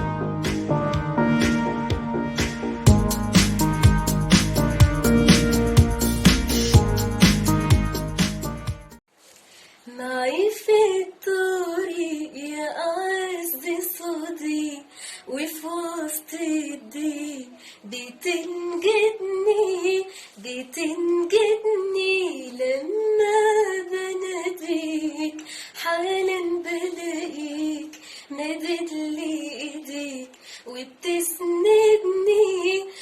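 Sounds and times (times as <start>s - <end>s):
woman singing a hymn: 9.9s - 33.0s.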